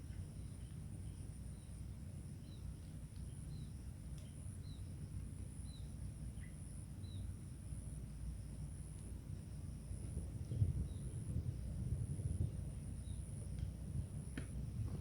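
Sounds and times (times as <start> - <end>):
low wind rumble: 9.9 - 15.0.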